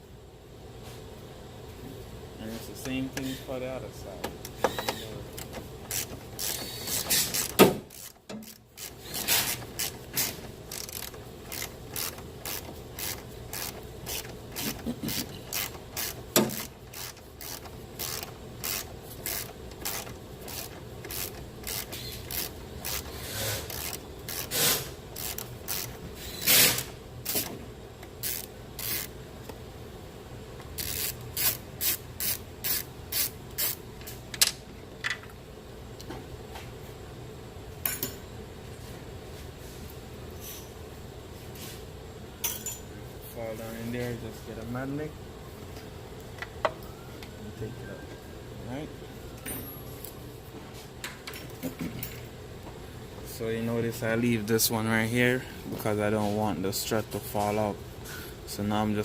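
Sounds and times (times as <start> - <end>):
ratchet clicking: 4.4 - 29.1, 30.7 - 33.8.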